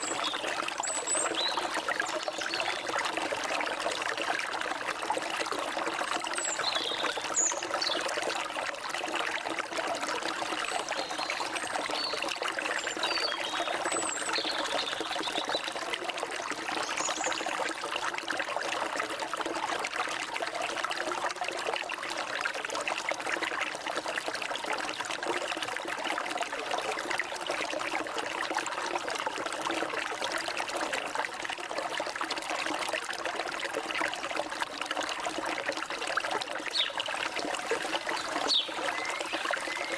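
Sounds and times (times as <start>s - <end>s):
stream water flowing and trickling: 0.0s - 39.9s
high bird chirps: 38.2s - 39.9s.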